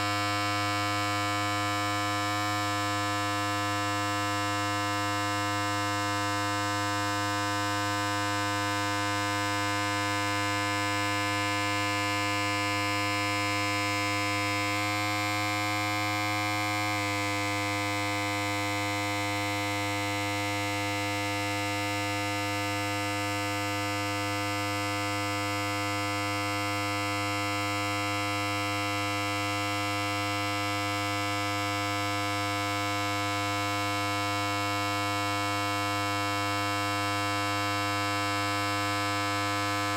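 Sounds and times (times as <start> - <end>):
electric hair clipper buzzing: 0.0 - 21.0, 38.7 - 39.9.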